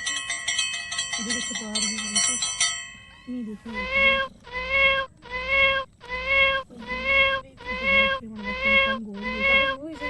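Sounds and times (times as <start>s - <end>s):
kitten mewing: 3.7s - 10.0s.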